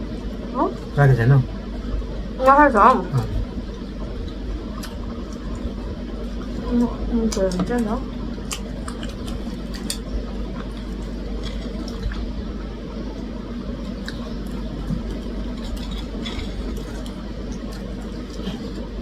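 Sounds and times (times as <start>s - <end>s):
steady low hum: 0.0s - 19.0s
eating clicks and smacks: 2.4s - 12.4s, 13.8s - 19.0s.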